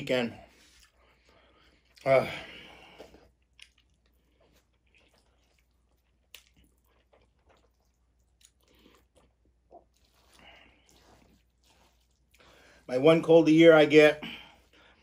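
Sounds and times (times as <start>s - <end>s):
faint chewing: 0.6s - 2.1s, 2.8s - 12.9s.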